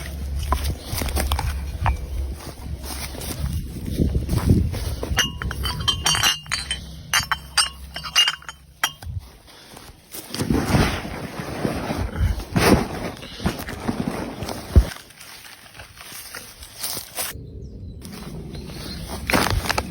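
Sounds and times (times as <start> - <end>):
rustling handling noise: 0.0 - 17.4, 18.0 - 19.9
glass bottles clinking: 1.2 - 2.4, 5.0 - 9.2.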